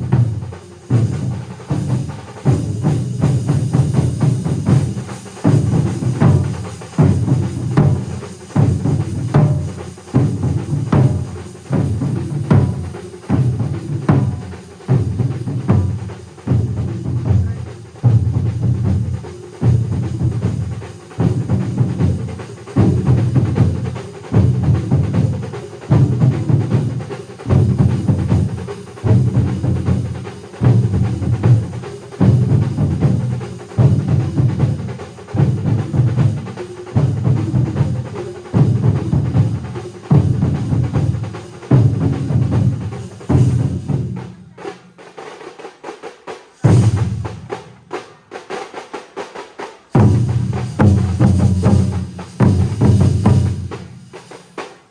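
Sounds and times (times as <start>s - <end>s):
drum ensemble playing rhythm: 0.0s - 54.9s
sharp drum stroke: 49.8s - 54.9s.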